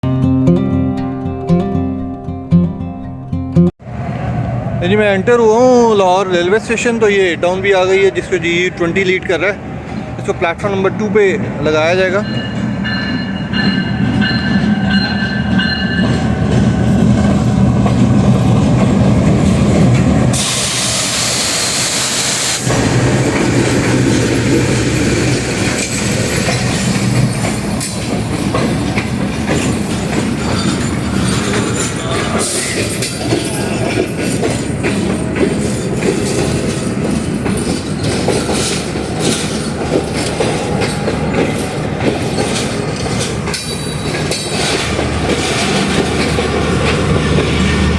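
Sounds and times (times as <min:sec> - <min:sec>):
carriages rumbling: 0:03.8 - 0:21.0, 0:22.6 - 0:47.9
locomotive engine droning: 0:03.8 - 0:47.9
train wheels clicking over rail joints: 0:12.4 - 0:47.9
loud hiss: 0:20.3 - 0:24.0.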